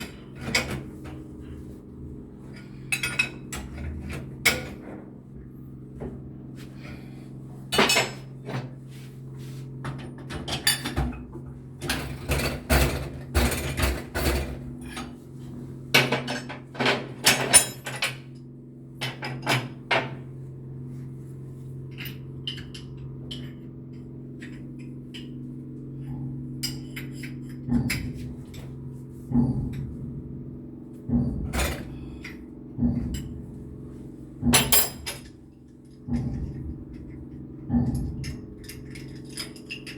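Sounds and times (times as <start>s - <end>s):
low machinery hum: 0.0s - 39.9s.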